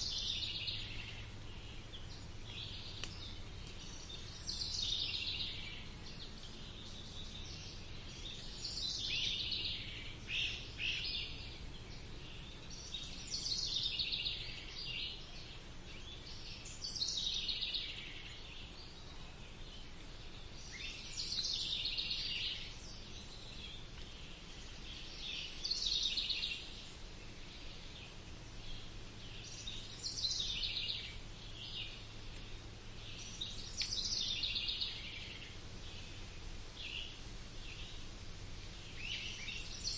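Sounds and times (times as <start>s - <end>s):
faint low rumble: 0.0s - 39.9s.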